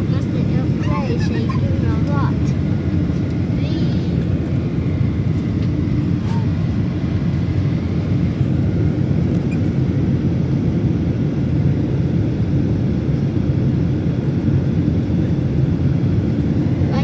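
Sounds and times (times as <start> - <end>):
airplane low rumble: 0.0 - 17.0.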